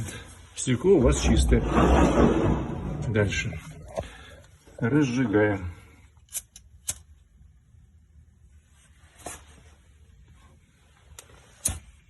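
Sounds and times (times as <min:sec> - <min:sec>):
low steady rumble: 0:01.0 - 0:04.3.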